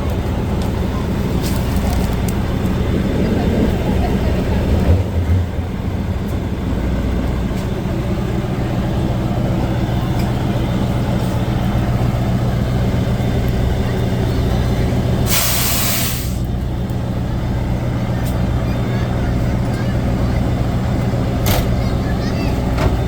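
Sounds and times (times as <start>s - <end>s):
heavy truck engine running: 0.0s - 23.0s
air hiss: 15.3s - 16.5s.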